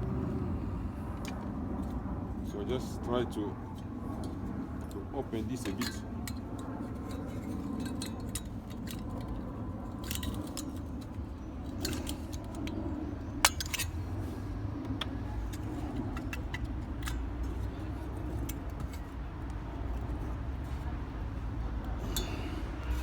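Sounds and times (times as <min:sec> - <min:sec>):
metal clicks of tools and parts: 0:05.6 - 0:09.4, 0:10.0 - 0:12.8, 0:13.4 - 0:14.0, 0:15.0 - 0:19.1, 0:21.8 - 0:23.0.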